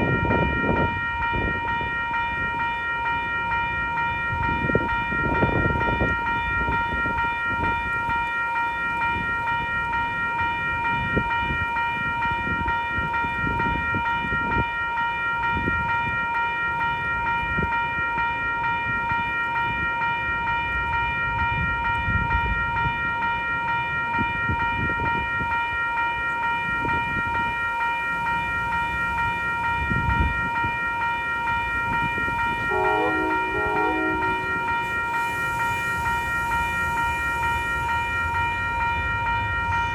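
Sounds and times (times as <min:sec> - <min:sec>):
wind buffeting microphone: 0:00.0 - 0:02.6, 0:04.3 - 0:08.1, 0:21.3 - 0:23.2, 0:24.1 - 0:25.6, 0:29.7 - 0:30.9
steady high-pitched tone: 0:00.0 - 0:39.9
train running: 0:00.0 - 0:39.9.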